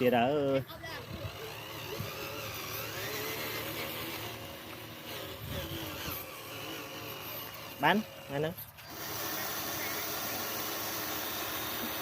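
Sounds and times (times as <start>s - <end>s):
small electric motor whirring: 0.0s - 12.0s.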